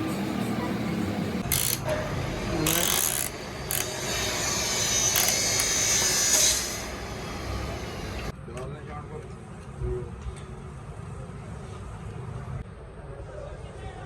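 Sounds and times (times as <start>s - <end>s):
tool hissing and scraping: 1.4s - 8.3s
tool rasping burst: 1.4s - 8.3s.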